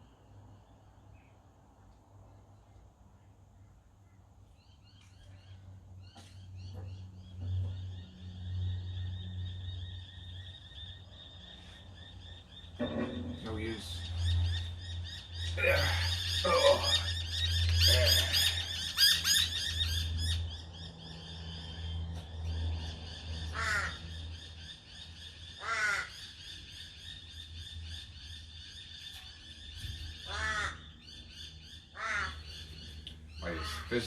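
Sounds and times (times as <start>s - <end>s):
birds giving harsh barking calls: 5.4s - 22.0s, 23.1s - 34.0s.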